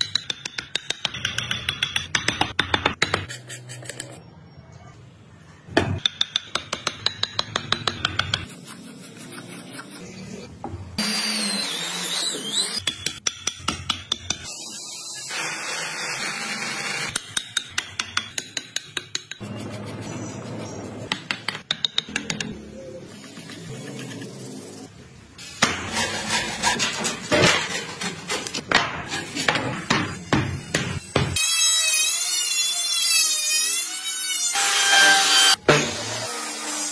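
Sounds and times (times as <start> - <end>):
hand tools rasping wood: 25.8 - 28.6.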